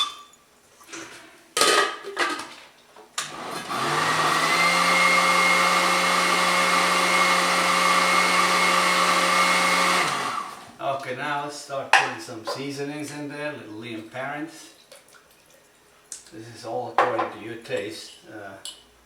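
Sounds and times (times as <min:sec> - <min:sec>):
blender motor whirring: 0:03.2 - 0:10.8.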